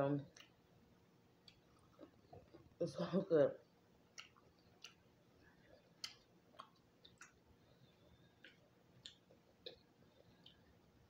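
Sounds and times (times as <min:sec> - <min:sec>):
chewing mouth clicks and smacks: 0:00.3 - 0:00.6, 0:04.1 - 0:07.4, 0:08.4 - 0:10.7.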